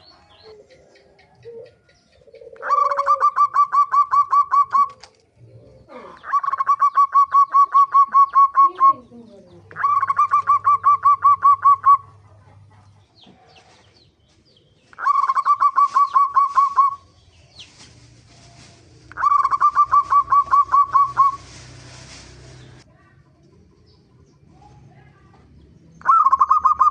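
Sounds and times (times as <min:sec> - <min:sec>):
dove cooing: 0:00.0 - 0:12.8, 0:14.9 - 0:17.2, 0:18.4 - 0:21.6, 0:26.0 - 0:26.9.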